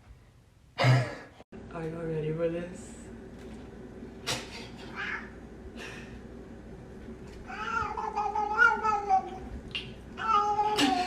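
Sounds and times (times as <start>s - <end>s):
cat yowling meow: 7.5s - 9.4s, 10.2s - 11.0s.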